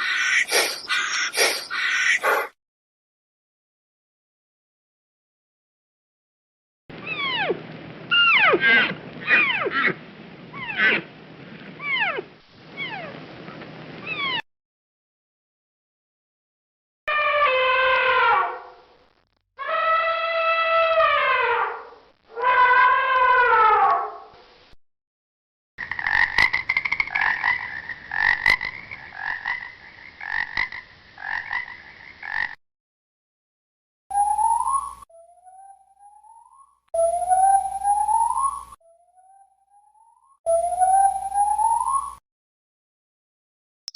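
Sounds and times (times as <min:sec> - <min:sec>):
frog croaking: 0:00.0 - 0:02.5, 0:25.8 - 0:32.6
animal cries falling in pitch: 0:17.1 - 0:18.6, 0:19.6 - 0:24.3.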